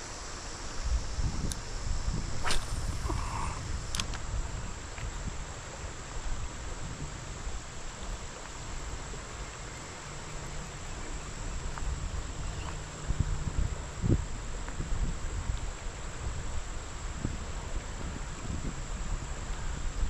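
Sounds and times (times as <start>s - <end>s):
insects chirring: 0.0s - 14.7s
low rumble of water or wind: 0.1s - 20.0s.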